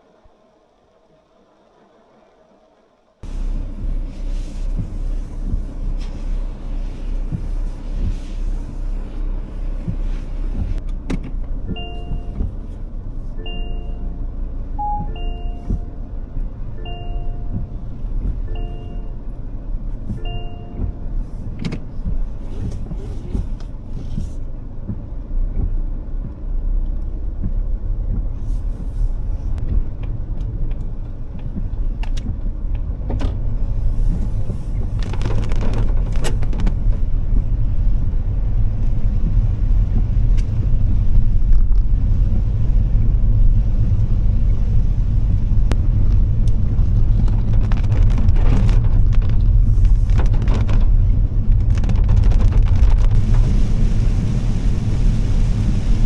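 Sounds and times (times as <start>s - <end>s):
heavy rain and wind rumble: 3.2s - 56.0s
raindrops ticking: 24.7s - 29.0s, 34.2s - 53.5s.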